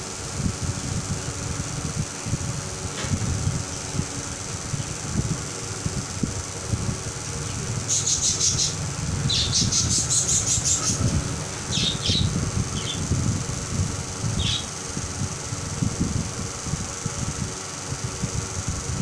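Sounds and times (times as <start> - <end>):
small bird chirping: 7.4 - 13.0, 14.4 - 14.7.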